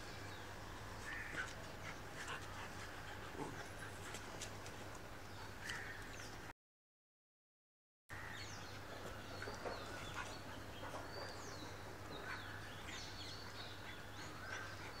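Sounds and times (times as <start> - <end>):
small birds chirping: 8.1 - 15.0.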